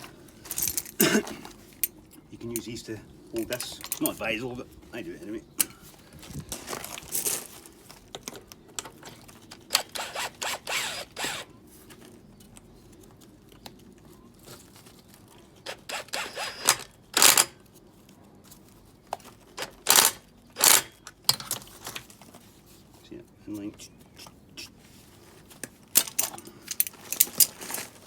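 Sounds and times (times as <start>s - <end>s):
metal tools clicking and rattling: 0.4s - 2.8s, 3.4s - 4.4s, 15.7s - 17.6s, 19.6s - 21.8s, 25.9s - 28.0s.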